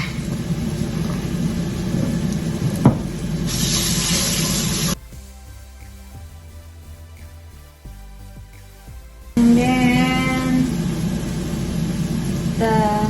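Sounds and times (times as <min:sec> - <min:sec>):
garlic sizzling in hot oil: 0:00.0 - 0:05.0
faint music: 0:00.0 - 0:13.0.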